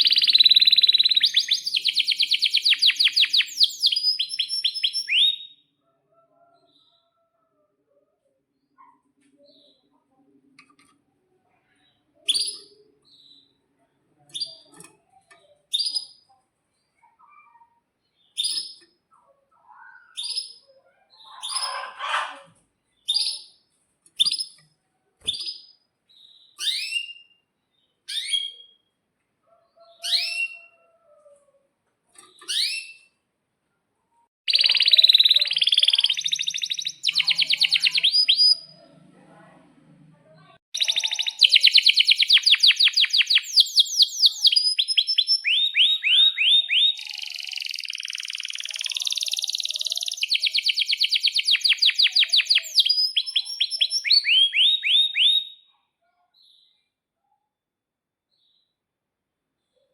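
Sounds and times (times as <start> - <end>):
canary trilling: 0.0 - 5.6, 18.3 - 23.6, 29.5 - 31.1, 32.2 - 33.2, 34.5 - 38.8, 40.8 - 55.7
canary chirping: 0.0 - 5.7, 11.8 - 31.0, 32.1 - 33.2, 34.5 - 39.0, 40.5 - 55.7.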